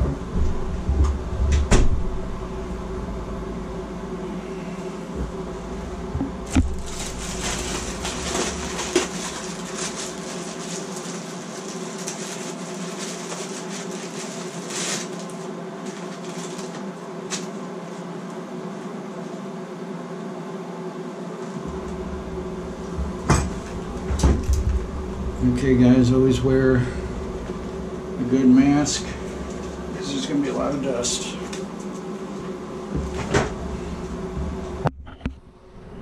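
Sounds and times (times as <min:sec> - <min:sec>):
exhaust fan humming: 0:00.0 - 0:36.0
rustling: 0:06.4 - 0:16.8.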